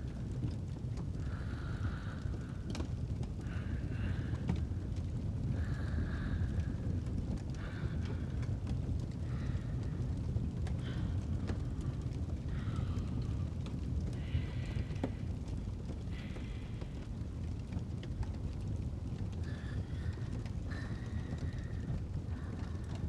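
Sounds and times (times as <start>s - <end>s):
fireplace crackling: 0.0s - 23.0s
low rumble: 0.0s - 23.0s
soft breaths: 0.0s - 23.0s.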